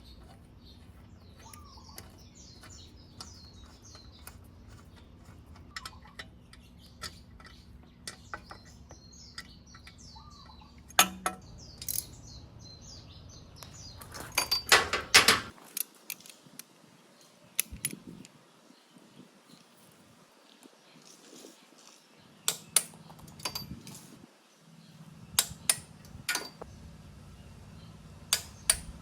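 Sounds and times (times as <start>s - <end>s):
bird chirping: 0.0s - 15.5s, 24.4s - 29.0s
metal tools clinking and clattering: 0.1s - 10.0s, 10.9s - 12.2s, 14.0s - 16.3s, 23.2s - 24.2s.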